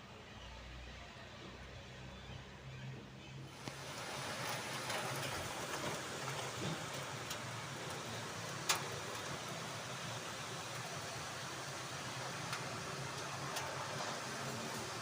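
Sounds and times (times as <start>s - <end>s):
rain hissing: 3.5s - 15.0s.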